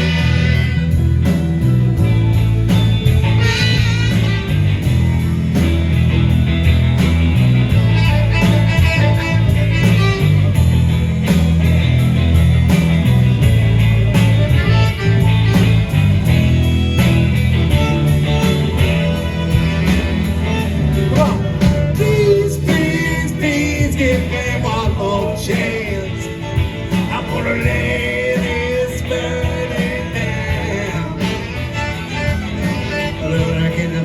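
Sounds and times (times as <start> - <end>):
electric guitar: 0.0 - 34.0
live rock band playing: 0.0 - 34.0.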